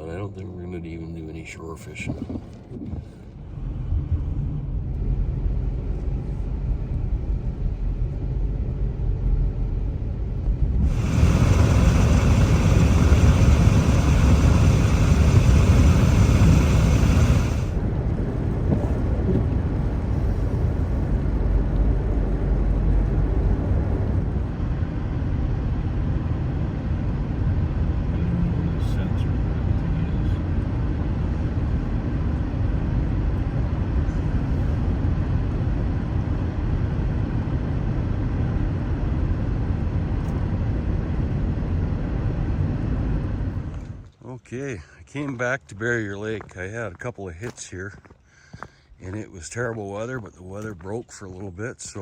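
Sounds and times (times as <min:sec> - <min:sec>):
vehicle road noise rumble: 0:00.0 - 0:44.2
loud broadband hiss: 0:10.7 - 0:17.9.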